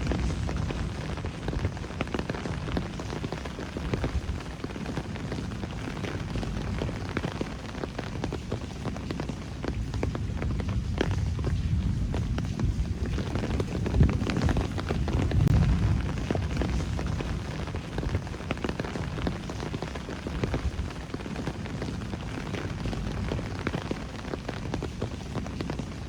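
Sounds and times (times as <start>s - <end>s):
low rumble: 0.0s - 3.2s, 9.8s - 18.4s
steady rain: 0.0s - 26.0s.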